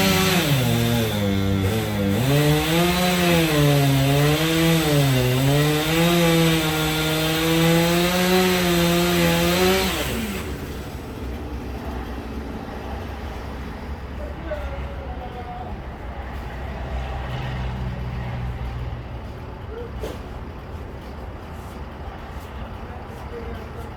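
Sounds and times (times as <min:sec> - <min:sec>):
chainsaw cutting log: 0:00.0 - 0:11.4.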